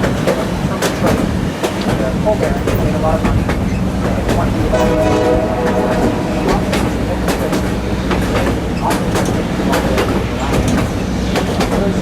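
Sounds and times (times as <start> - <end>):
wheels clicking over rails: 0.0 - 4.8
railway car rumbling on track: 0.0 - 12.0.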